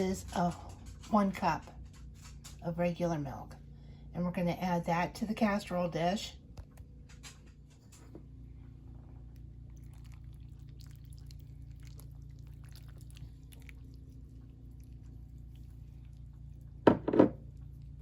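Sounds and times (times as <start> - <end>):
low room hum: 0.0 - 18.0
milk pouring: 9.1 - 17.9
loud knocks: 16.9 - 17.4.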